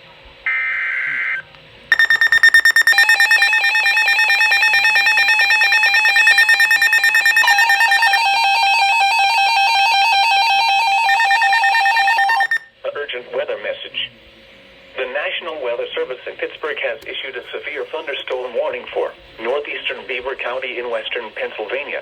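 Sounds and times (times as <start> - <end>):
screech of data tones: 1.9 - 12.6
pulsing electronic alarm beep: 1.9 - 12.7.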